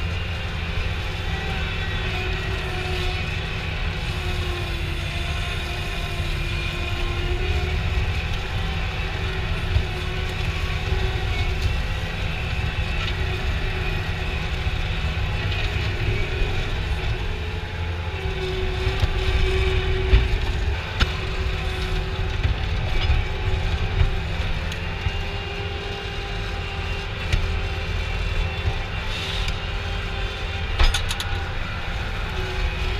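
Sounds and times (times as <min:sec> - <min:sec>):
vehicle engine rumble: 0:00.0 - 0:32.9.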